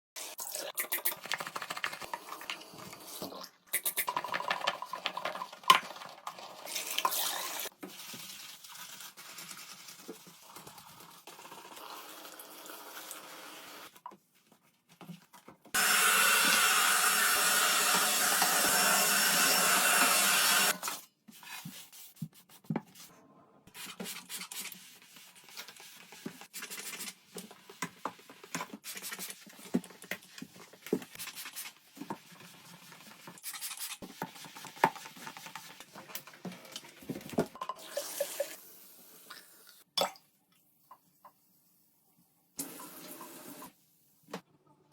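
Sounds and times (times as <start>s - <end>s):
handling and rubbing: 21.2s - 23.1s.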